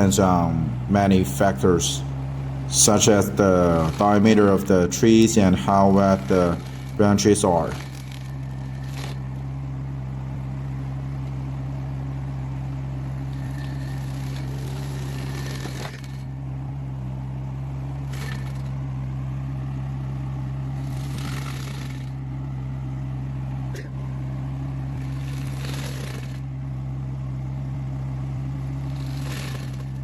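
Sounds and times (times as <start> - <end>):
diesel engine running under load: 0.0 - 30.0.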